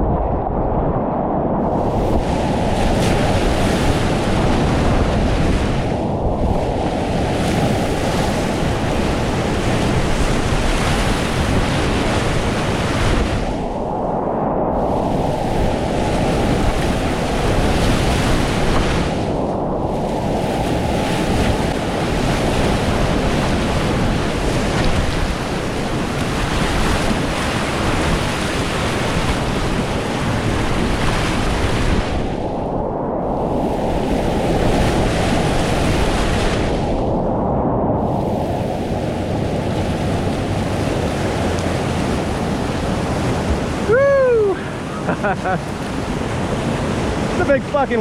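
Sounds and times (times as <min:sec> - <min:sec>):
roar of whitewater rapids: 0:39.6 - 0:45.8.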